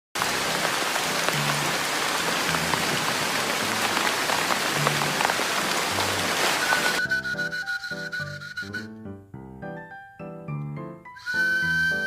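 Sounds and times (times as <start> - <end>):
steady rain falling: 0.2 - 7.0
low bass music notes: 8.8 - 11.0.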